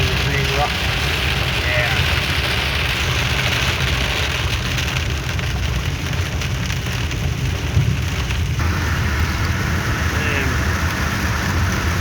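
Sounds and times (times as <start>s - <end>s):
car rumbling along road: 0.0s - 12.0s
heavy rain on car: 0.0s - 12.0s.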